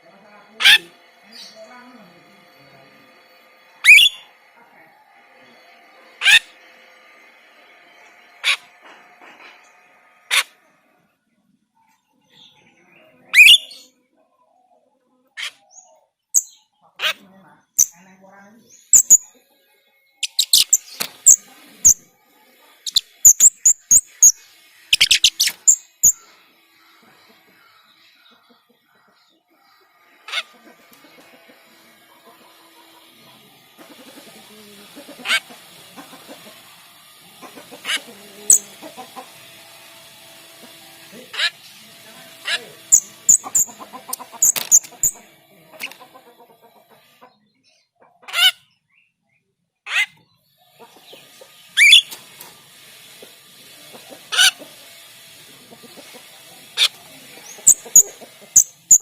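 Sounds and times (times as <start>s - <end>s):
starling calling: 0.5s - 1.8s, 3.7s - 4.3s, 6.2s - 6.6s, 13.3s - 13.9s, 18.7s - 19.3s, 20.2s - 22.1s, 22.8s - 27.1s, 37.4s - 39.4s, 41.2s - 46.0s, 51.6s - 52.2s, 54.2s - 54.9s, 55.9s - 59.0s.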